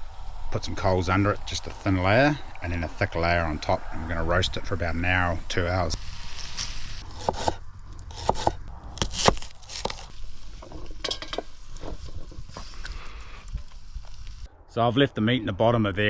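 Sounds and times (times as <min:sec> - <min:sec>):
rustling and crinkling: 0:09.2 - 0:14.5.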